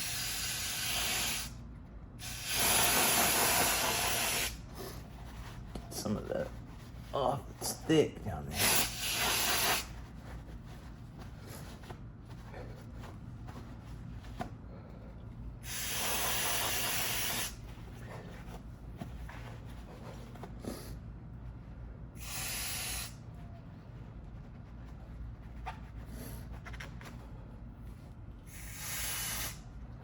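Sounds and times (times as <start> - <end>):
aerosol spray can hissing: 0.0 - 1.5, 2.2 - 4.6, 8.6 - 9.9, 15.6 - 17.6, 22.2 - 23.1, 28.5 - 29.6.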